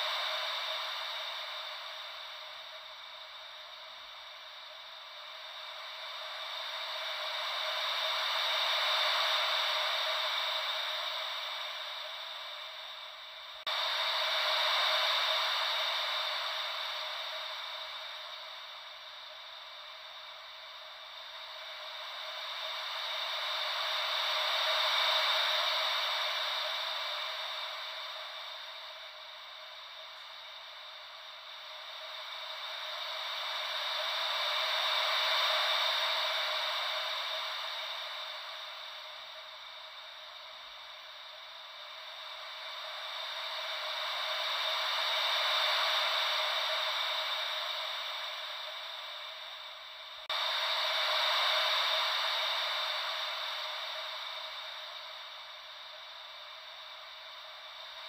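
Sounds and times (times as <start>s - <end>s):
ocean wave white noise: 0.0s - 58.0s.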